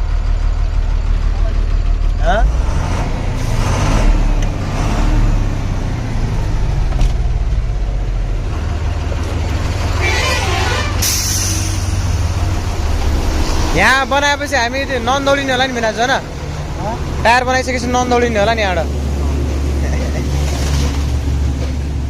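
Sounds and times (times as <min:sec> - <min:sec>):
diesel truck engine idling: 0:00.0 - 0:22.0
air release hiss: 0:11.0 - 0:12.2.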